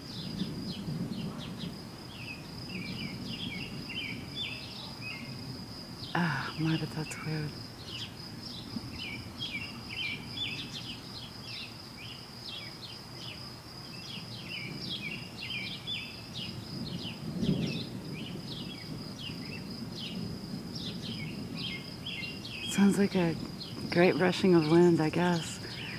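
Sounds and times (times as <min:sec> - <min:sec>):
high insect drone: 0:00.0 - 0:25.9
birds chirping: 0:06.0 - 0:13.4, 0:14.0 - 0:25.9.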